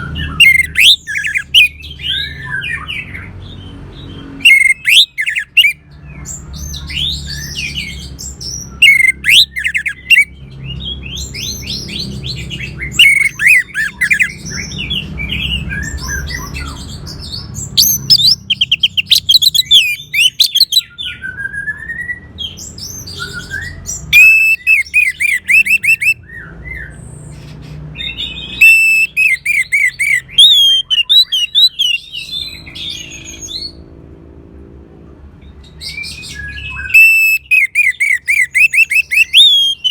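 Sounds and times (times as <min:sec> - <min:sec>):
thrush singing: 0:00.0 - 0:02.5, 0:04.4 - 0:05.8, 0:07.0 - 0:10.3, 0:11.8 - 0:20.8, 0:23.6 - 0:26.2, 0:28.1 - 0:32.8, 0:36.7 - 0:39.9.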